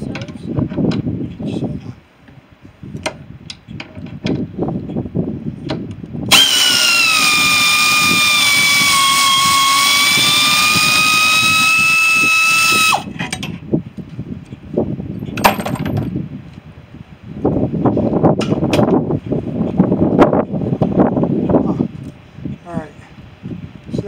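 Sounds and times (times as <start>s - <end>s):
reciprocating saw cutting metal: 6.3s - 13.0s.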